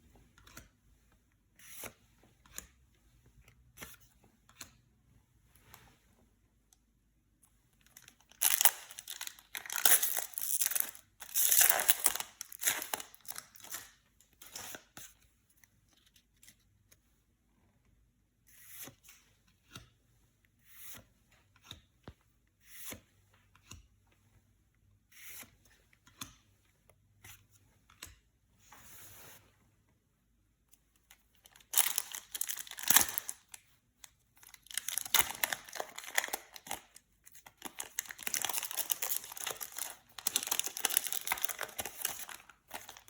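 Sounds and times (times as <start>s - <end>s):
wrapper crinkling and rustling: 8.0s - 13.9s, 31.4s - 33.5s, 34.4s - 43.0s
wrapper tearing: 8.2s - 13.9s, 31.5s - 33.5s, 34.4s - 36.8s, 37.6s - 43.0s.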